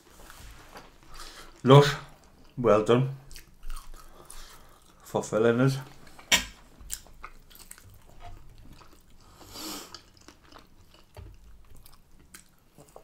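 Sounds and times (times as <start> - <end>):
people chewing chips: 3.2 - 5.2, 5.9 - 13.0.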